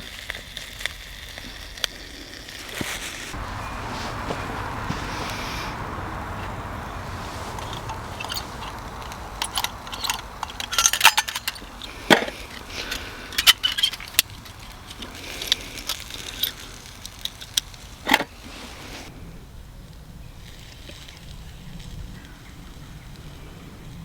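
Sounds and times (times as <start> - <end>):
metal cooking gear clinking: 7.1 - 18.3.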